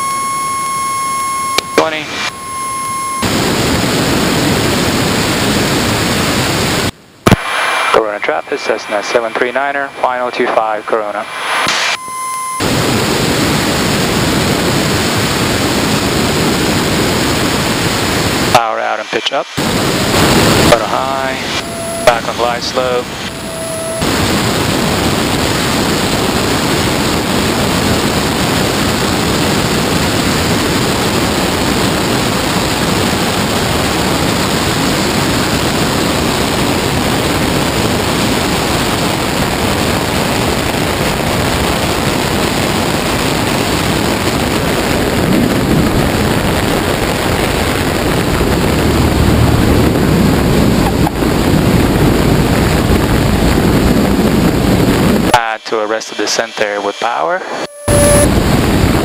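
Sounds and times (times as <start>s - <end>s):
deep rumble: 0.0s - 6.5s, 19.6s - 55.4s, 57.7s - 59.0s
aircraft engine running: 0.0s - 7.0s, 11.4s - 18.6s, 19.6s - 55.6s
wind rushing over camera: 19.6s - 55.4s, 58.0s - 59.0s.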